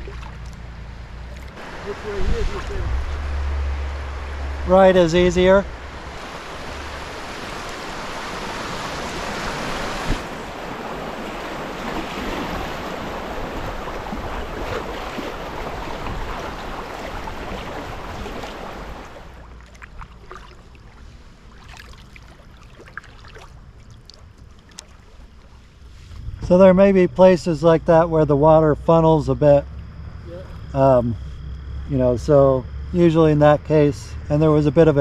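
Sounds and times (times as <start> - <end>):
paddle splashes and drips: 0.0 - 2.0, 5.8 - 25.9
river water rushing: 0.0 - 24.2.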